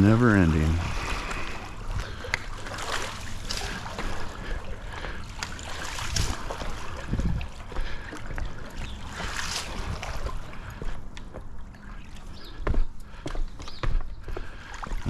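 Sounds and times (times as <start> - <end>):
pool water sloshing and splashing: 0.0 - 13.3, 14.4 - 15.0.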